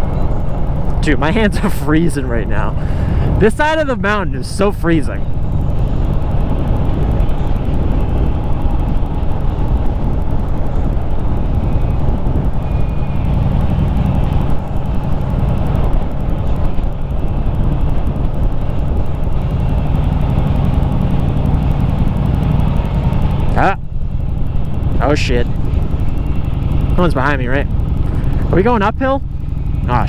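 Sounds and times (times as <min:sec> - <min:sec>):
motorcycle engine running: 0:00.0 - 0:30.0
wind noise on microphone: 0:02.4 - 0:30.0.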